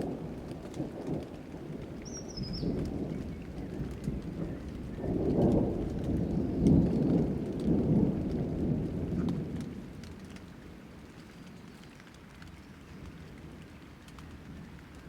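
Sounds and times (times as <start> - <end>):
rolling thunder: 0.0 - 10.7
light rain with drop ticks: 0.0 - 15.0.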